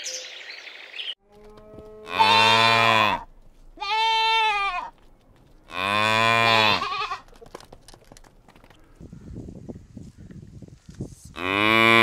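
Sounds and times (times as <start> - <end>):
cattle mooing: 1.2 - 4.9, 5.7 - 7.2.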